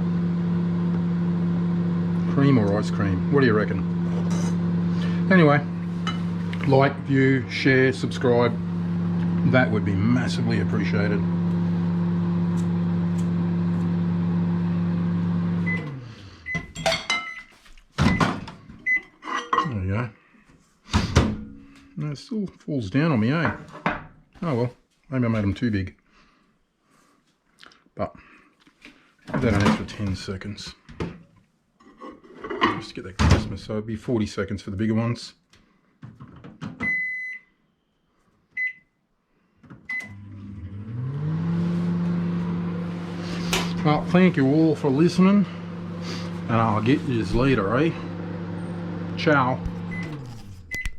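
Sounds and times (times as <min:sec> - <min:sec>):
microwave oven humming: 0:00.0 - 0:16.8, 0:39.9 - 0:50.9
microwave keypad beeping: 0:36.8 - 0:37.5, 0:39.9 - 0:40.2.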